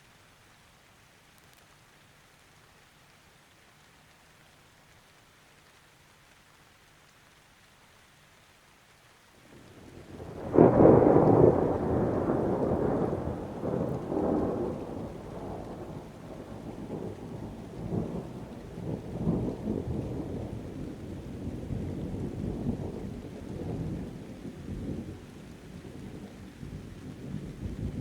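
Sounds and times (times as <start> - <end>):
rain falling: 0.0 - 28.0
thunder rumbling: 9.6 - 28.0
loud thunder clap: 10.1 - 20.7.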